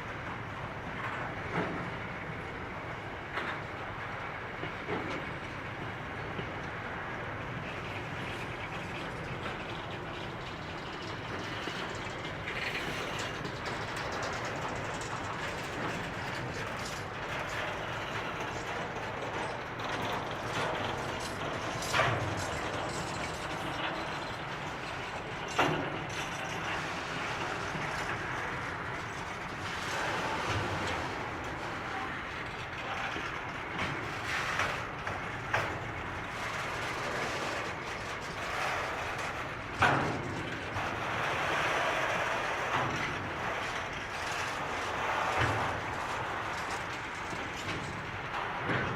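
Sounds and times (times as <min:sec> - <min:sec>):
train wheels clattering over track: 0:00.0 - 0:48.9.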